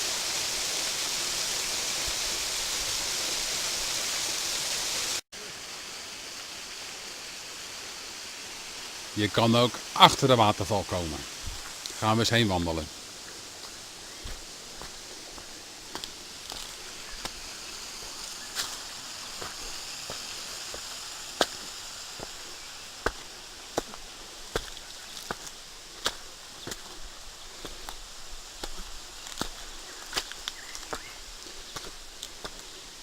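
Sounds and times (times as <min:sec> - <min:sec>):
steady high hiss: 0:00.0 - 0:33.0
footsteps on rock: 0:11.4 - 0:12.8, 0:13.6 - 0:27.0, 0:28.6 - 0:32.7.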